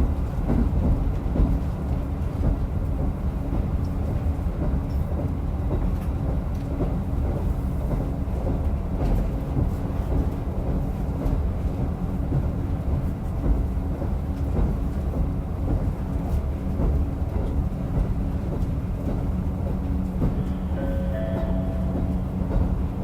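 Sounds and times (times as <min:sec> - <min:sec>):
railcar engine rumbling: 0:00.0 - 0:23.0.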